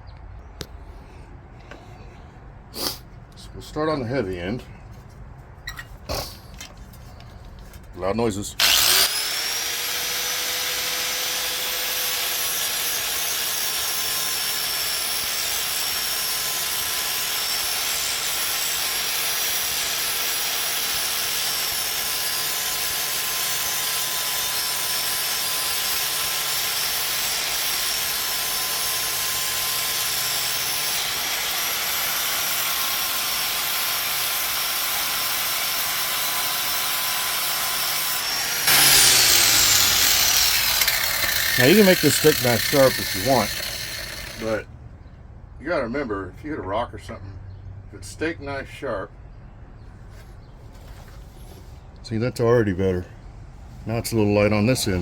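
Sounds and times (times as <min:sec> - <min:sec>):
angle grinder grinding steel: 0:08.6 - 0:44.6.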